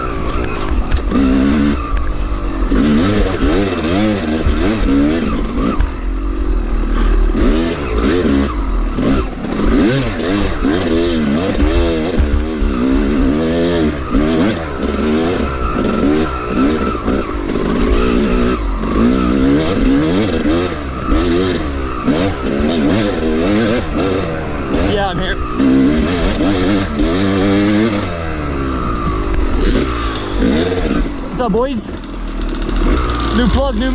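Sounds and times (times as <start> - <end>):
dirt bike engine revving: 0.0 - 33.9
knocks and clatter: 9.5 - 13.6.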